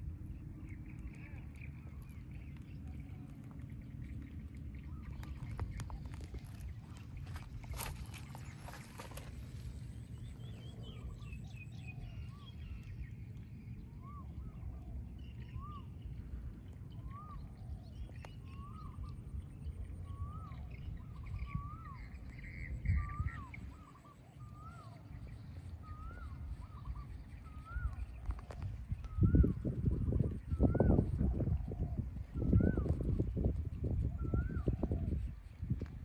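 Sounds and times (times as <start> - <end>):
wind rumble on microphone: 0.0 - 36.0
bird calling: 16.9 - 19.3.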